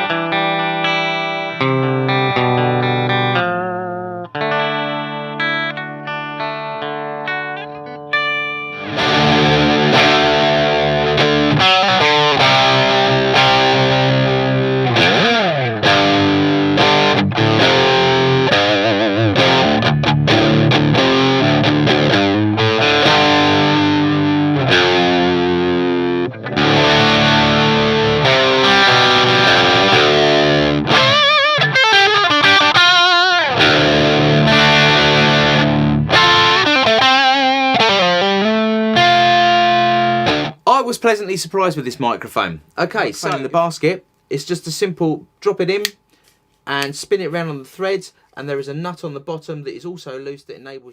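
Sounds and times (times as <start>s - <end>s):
distorted electric guitar: 0.0s - 40.6s.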